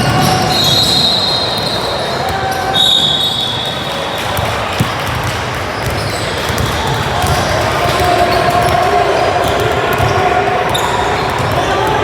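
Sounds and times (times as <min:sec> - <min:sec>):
basketball bouncing on court: 0:03.7 - 0:12.0.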